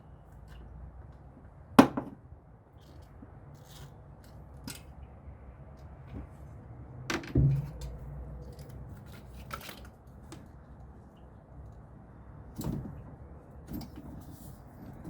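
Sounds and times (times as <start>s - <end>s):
loud metal knock: 7.2s - 8.0s.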